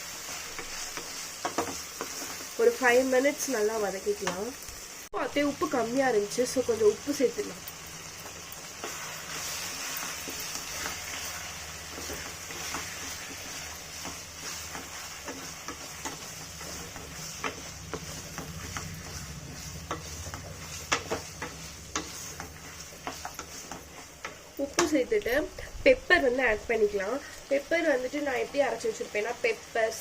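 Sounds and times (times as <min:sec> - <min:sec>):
chicken and onions sizzling in oil: 0:00.0 - 0:30.0
utensil scraping a pan: 0:08.8 - 0:25.0.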